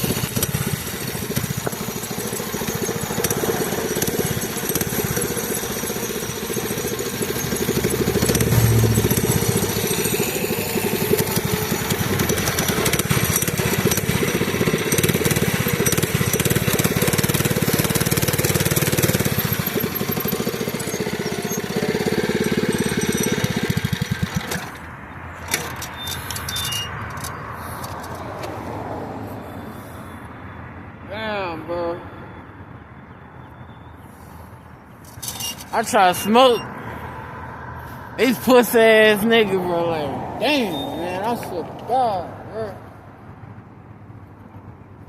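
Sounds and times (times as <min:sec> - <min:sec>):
small engine running: 0:00.0 - 0:28.2, 0:35.1 - 0:36.7.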